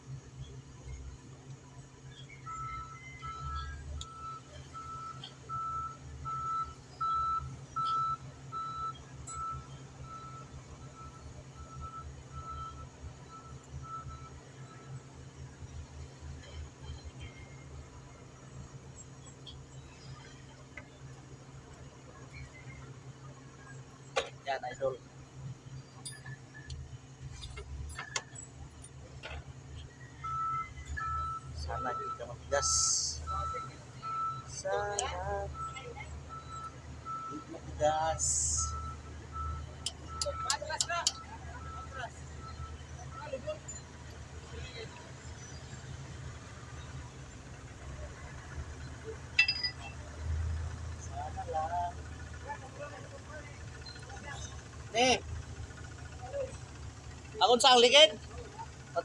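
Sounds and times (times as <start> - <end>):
low engine hum: 0.0 - 59.0
reversing alarm beeping: 2.3 - 14.9, 29.8 - 44.0, 49.4 - 56.9
hand tools clinking on metal: 49.3 - 50.0.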